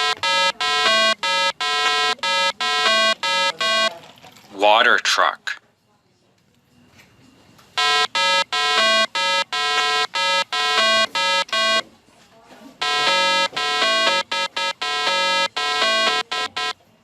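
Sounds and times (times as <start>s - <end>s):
electronic beeping melody: 0.0s - 3.9s, 7.8s - 11.8s, 12.8s - 16.8s.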